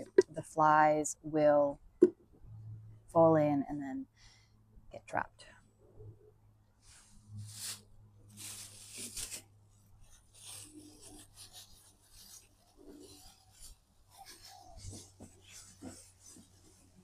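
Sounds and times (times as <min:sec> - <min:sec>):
faint steady hum: 0:00.0 - 0:14.0
objects scraping and rubbing: 0:06.8 - 0:17.0.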